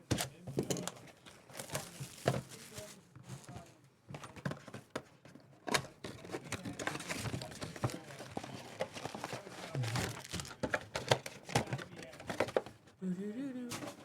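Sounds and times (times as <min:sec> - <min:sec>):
plastic wrapping crinkling: 0:01.5 - 0:03.0, 0:06.8 - 0:11.1.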